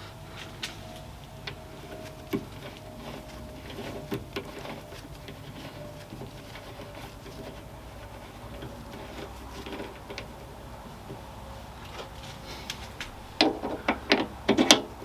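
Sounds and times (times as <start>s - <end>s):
lathe motor humming: 0.0s - 15.0s.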